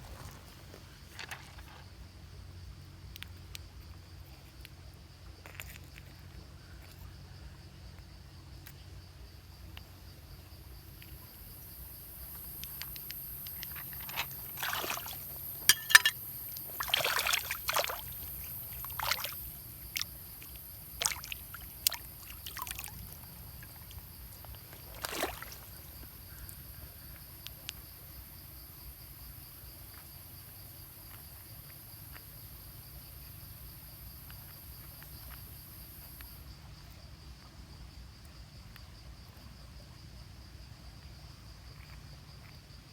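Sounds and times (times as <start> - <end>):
water sloshing and splashing: 0.0 - 1.8, 12.4 - 26.1
high insect drone: 6.6 - 39.8.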